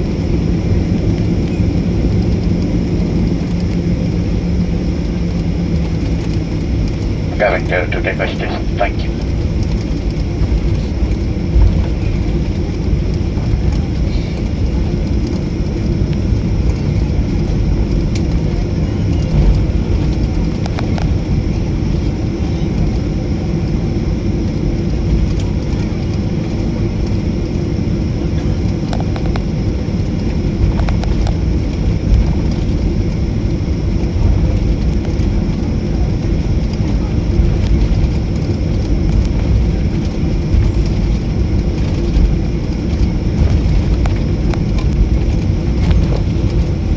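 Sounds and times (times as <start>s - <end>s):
jet engines rumbling: 0.0s - 46.9s.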